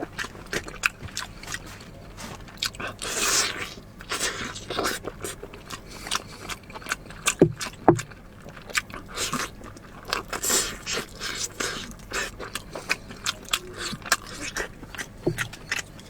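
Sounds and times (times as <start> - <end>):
chewing and crunching: 0.0 - 16.0
dull thuds: 7.4 - 8.1, 15.2 - 15.5.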